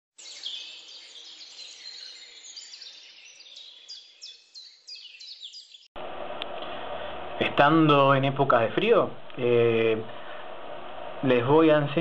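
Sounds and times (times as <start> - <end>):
small birds chirping: 0.2 - 5.9.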